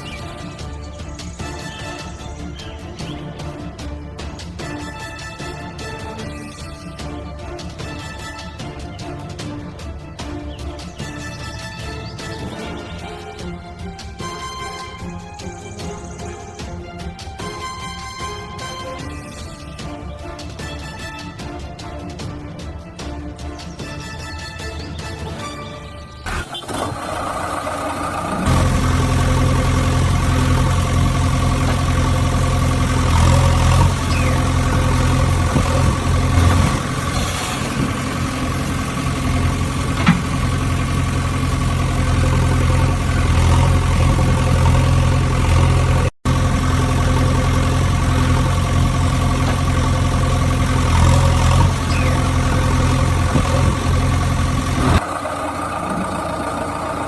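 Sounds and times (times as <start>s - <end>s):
engine idling: 0.0s - 6.1s, 26.3s - 57.0s.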